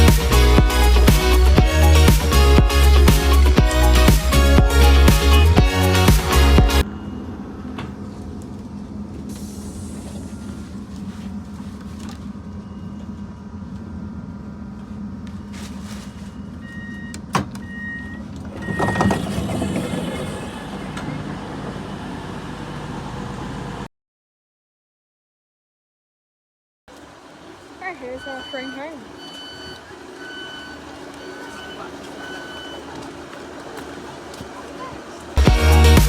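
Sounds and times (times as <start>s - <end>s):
train carriage rumble: 6.8s - 23.9s, 26.9s - 35.4s.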